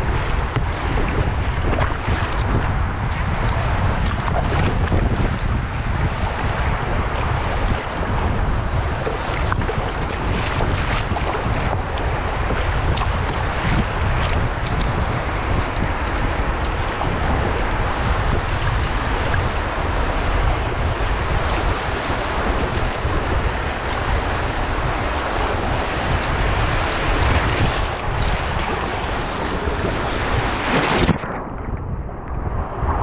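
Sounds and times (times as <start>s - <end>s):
breaking surf: 0.0s - 31.3s
wind buffeting microphone: 0.0s - 33.0s.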